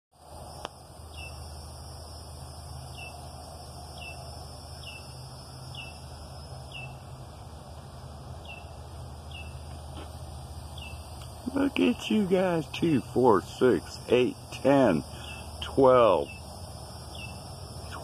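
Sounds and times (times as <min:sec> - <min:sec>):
insects droning: 0:00.2 - 0:18.0
bird high call: 0:04.0 - 0:06.1, 0:06.7 - 0:07.0.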